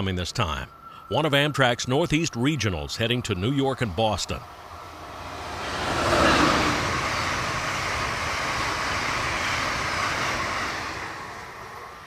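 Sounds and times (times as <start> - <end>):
train passing at speed: 0.6 - 12.0
rush of wheels and air: 4.4 - 12.0.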